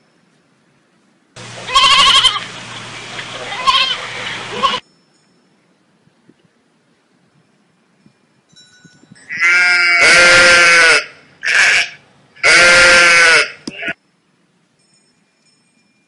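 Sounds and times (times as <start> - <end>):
sheep bleating: 1.6 - 2.5, 3.5 - 4.8, 9.4 - 14.0.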